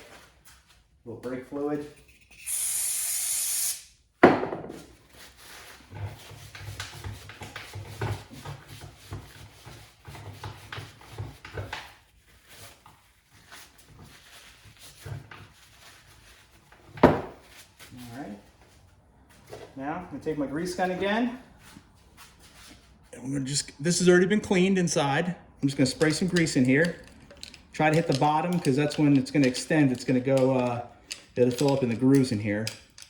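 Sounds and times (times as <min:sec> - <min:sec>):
aerosol spray hissing: 0:02.4 - 0:03.8.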